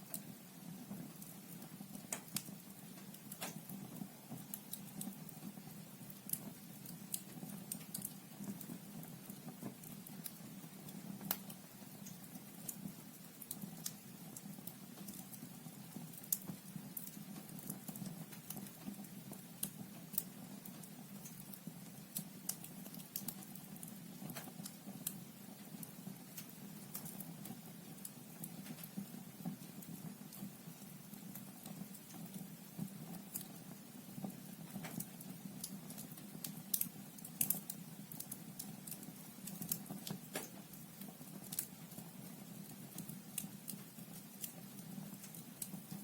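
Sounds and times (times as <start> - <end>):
logs crackling and popping: 0.0 - 46.0
low rumble of flame: 0.0 - 46.0.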